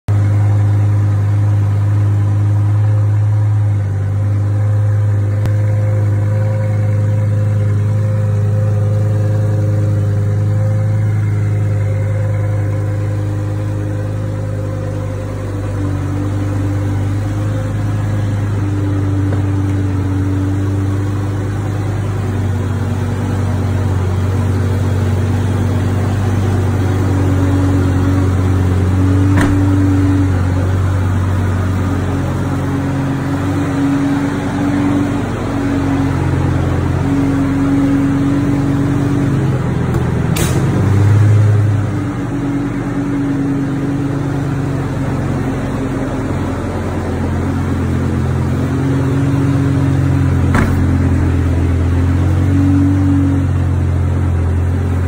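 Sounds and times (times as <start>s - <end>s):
car engine idling: 0.1s - 55.0s
brief knock: 29.4s - 29.8s, 50.5s - 51.0s.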